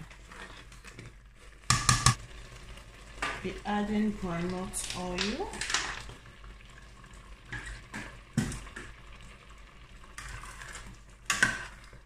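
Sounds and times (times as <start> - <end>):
plastic spoon scraping a pot: 0.0 - 1.6
frying oil hissing: 1.6 - 12.0.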